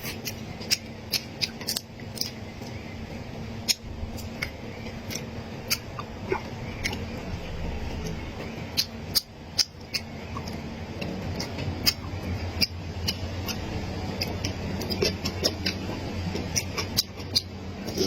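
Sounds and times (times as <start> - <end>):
low steady hum: 0.0 - 18.0
person chewing and crunching food: 0.0 - 18.0.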